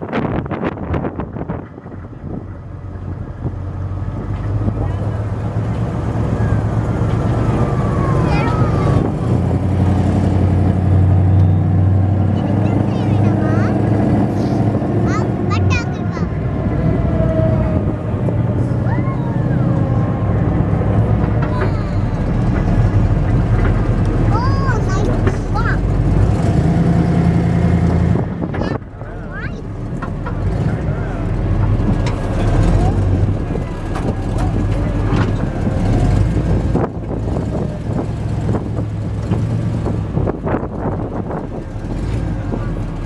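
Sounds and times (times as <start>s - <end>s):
monster truck engine rumbling: 0.0s - 43.0s
knocks and rattles: 20.8s - 26.6s, 29.6s - 40.0s.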